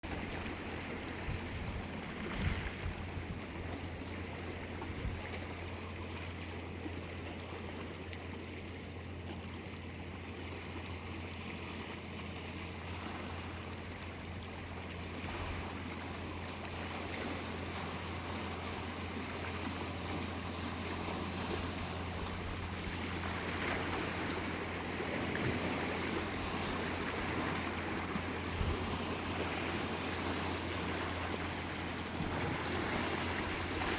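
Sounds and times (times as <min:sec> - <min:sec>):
sea waves washing onto shore: 0:11.0 - 0:33.9.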